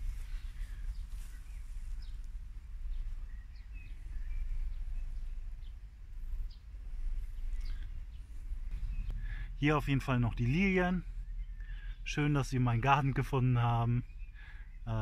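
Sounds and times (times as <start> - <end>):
faint bird chirps: 0.0 - 15.0
low uneven microphone rumble: 0.0 - 15.0.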